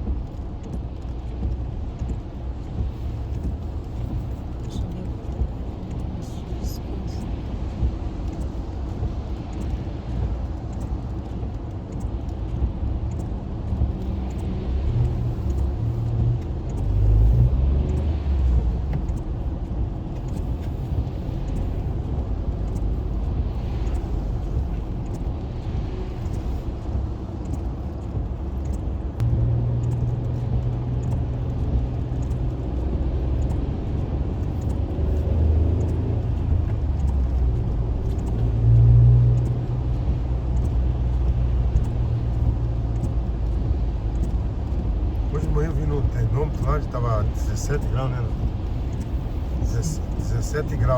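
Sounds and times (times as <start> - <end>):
car engine and road rumble: 0.0 - 50.9
steady low hum: 18.2 - 50.9.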